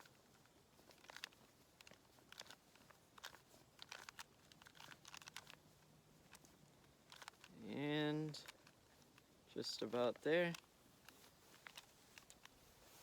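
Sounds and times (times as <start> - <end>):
plastic puzzle layers clicking: 0.0 - 5.6, 6.2 - 7.6, 10.1 - 12.6.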